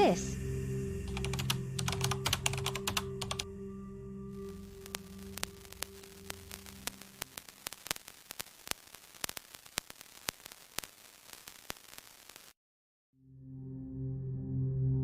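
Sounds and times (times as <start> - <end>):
radio static crackling: 4.4 - 12.6.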